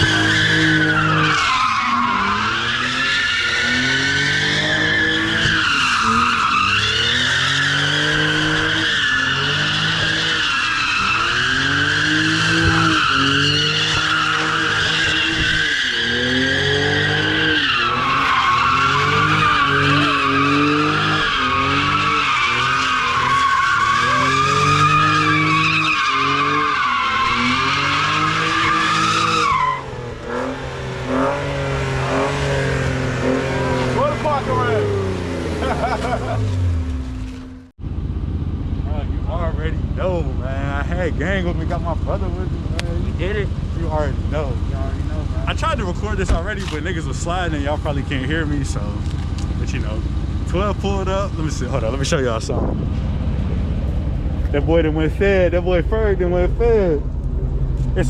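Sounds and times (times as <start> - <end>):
tyres squealing: 0.0 - 36.8
car engine revving: 0.0 - 58.0.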